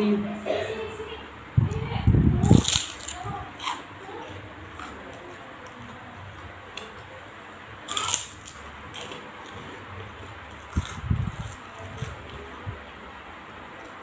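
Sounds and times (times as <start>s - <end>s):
person chewing crisp cracker: 2.4s - 7.2s, 7.8s - 13.1s.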